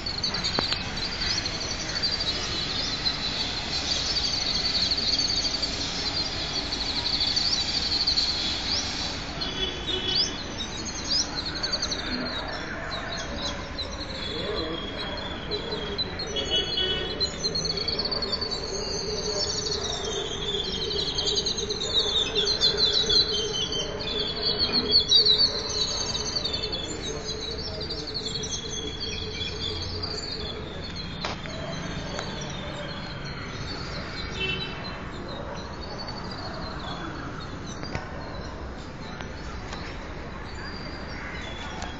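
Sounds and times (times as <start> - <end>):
small birds chirping and trilling: 0.0 - 41.9.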